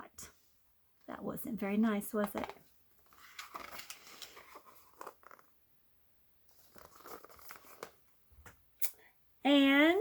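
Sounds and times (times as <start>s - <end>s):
paper rustling: 2.2s - 5.5s, 6.5s - 8.1s.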